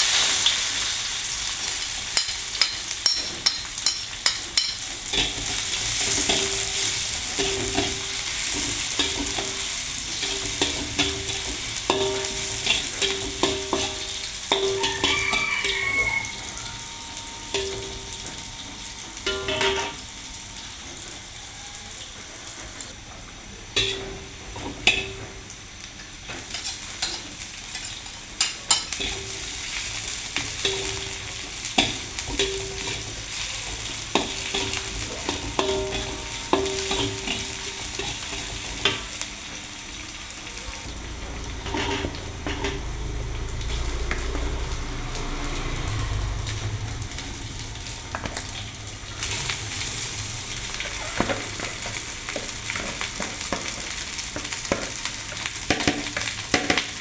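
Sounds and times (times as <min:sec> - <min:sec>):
food sizzling in a frying pan: 0:00.0 - 0:57.0
metal spatula scraping a pan: 0:02.6 - 0:18.6, 0:26.5 - 0:39.0, 0:41.4 - 0:47.1
low rumble: 0:40.9 - 0:50.7.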